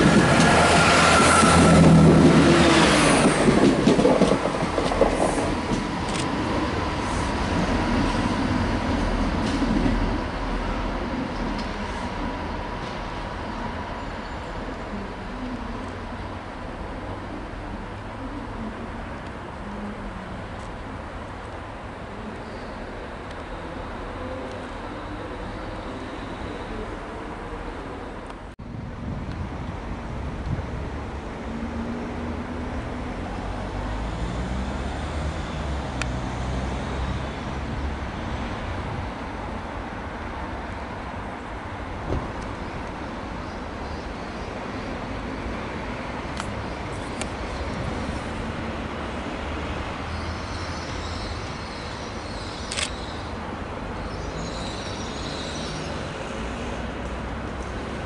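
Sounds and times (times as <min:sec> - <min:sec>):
train low rumble: 0:00.0 - 0:51.6.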